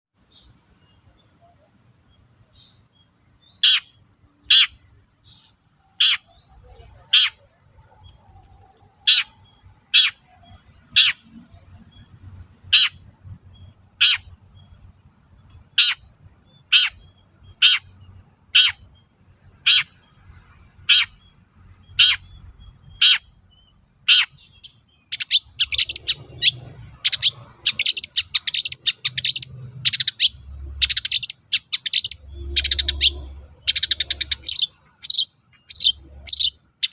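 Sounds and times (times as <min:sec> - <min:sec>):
bird fast chattering song: 0:02.5 - 0:36.9
shrike sharp calls: 0:05.9 - 0:11.8.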